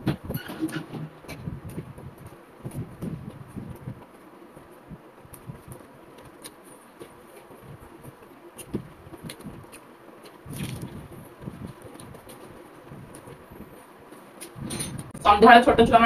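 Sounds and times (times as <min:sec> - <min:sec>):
person chewing fried food: 0:05.3 - 0:13.5.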